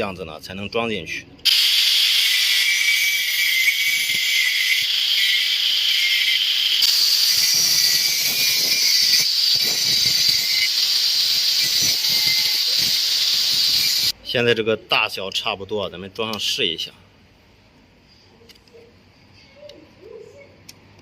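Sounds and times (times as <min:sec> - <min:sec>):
high-pitched grinding of plastic: 0:01.5 - 0:14.1.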